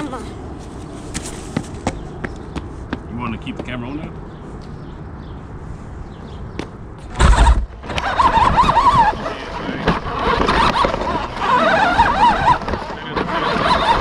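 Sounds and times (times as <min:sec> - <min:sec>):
wheels rumbling and rattling: 0:00.0 - 0:14.0
loud thump: 0:07.1 - 0:08.0
electric motor whining: 0:07.1 - 0:14.0.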